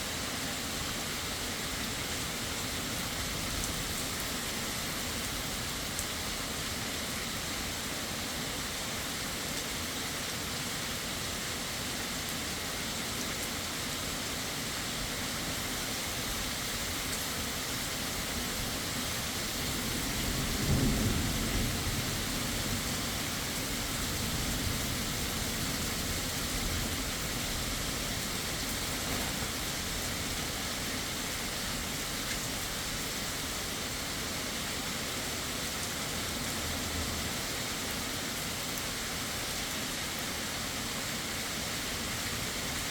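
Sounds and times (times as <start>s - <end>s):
heavy rain: 0.0s - 42.9s
thunder rumble: 19.9s - 23.2s.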